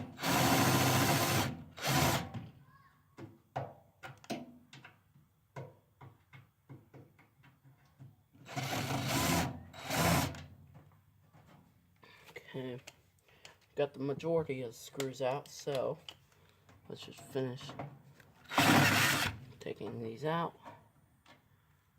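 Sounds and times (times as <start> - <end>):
power drill running in bursts: 0.0 - 2.3, 8.5 - 10.4, 18.5 - 19.4.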